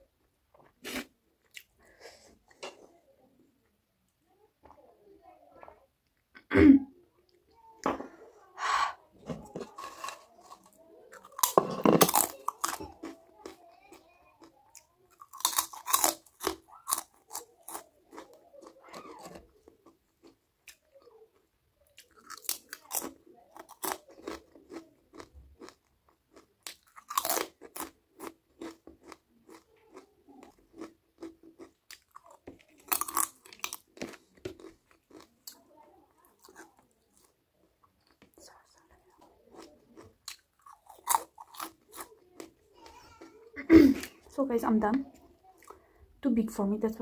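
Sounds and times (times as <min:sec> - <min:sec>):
person crunching food: 0:09.5 - 0:21.0, 0:22.0 - 0:35.6, 0:36.2 - 0:37.3, 0:39.5 - 0:43.3.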